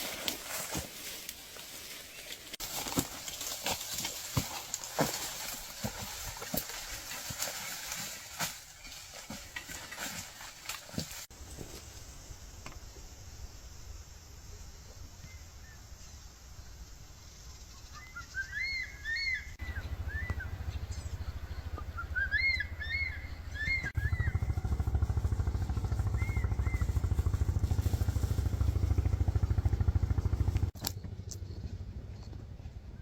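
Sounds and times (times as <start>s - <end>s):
bird chirps: 17.4s - 24.5s, 26.0s - 27.1s.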